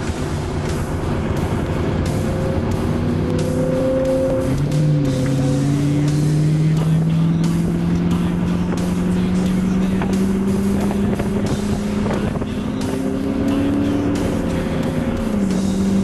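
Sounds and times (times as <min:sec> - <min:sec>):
car engine droning in cabin: 0:00.0 - 0:16.0
sliding descending tone: 0:00.6 - 0:07.1.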